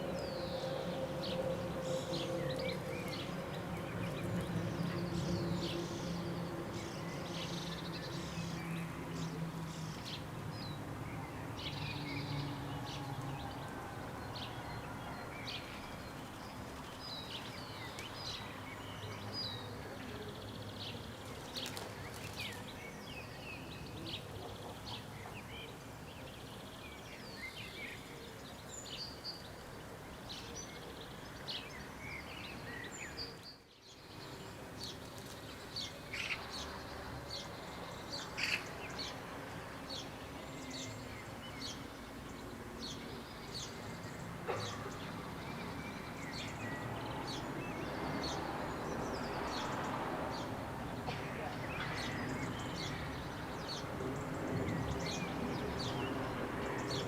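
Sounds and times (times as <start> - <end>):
birds chirping and singing: 0.0 - 13.6.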